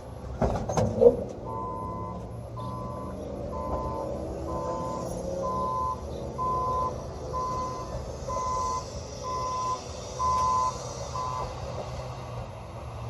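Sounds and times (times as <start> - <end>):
engine rumbling: 0.0 - 13.0
vehicle backup alarm beeping: 1.3 - 11.6.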